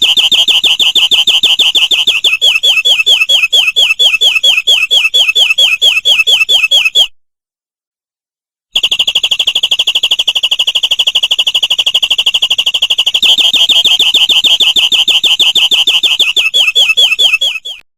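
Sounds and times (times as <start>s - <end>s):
canary singing trills: 0.0s - 7.1s, 13.2s - 17.8s.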